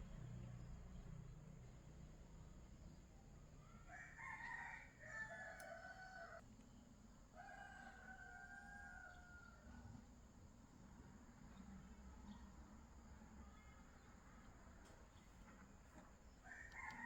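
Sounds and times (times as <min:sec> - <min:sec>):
faint rooster crowing: 0:03.5 - 0:06.4, 0:07.3 - 0:10.0, 0:16.3 - 0:17.0.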